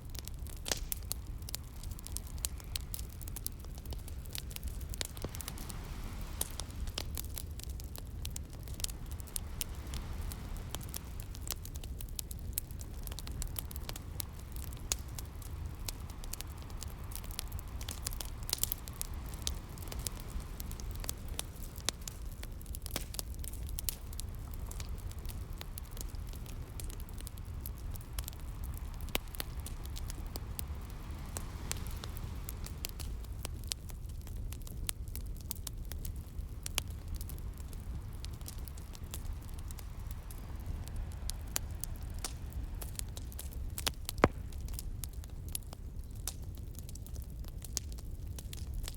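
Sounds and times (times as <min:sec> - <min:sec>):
wood fire crackling and popping: 0:00.0 - 0:48.9
sea waves rumbling: 0:01.4 - 0:22.6, 0:27.4 - 0:33.5.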